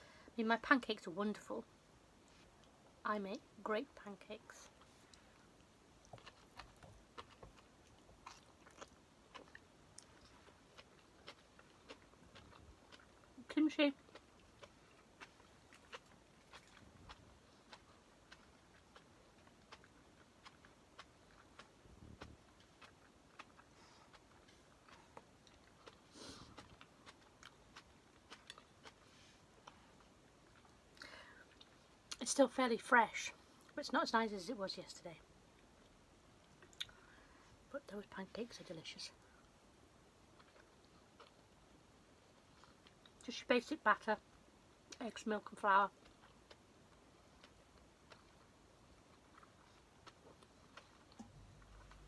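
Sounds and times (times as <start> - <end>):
chewing with mouth clicks: 4.6 - 32.2, 35.8 - 37.0, 40.2 - 43.2, 45.9 - 52.0.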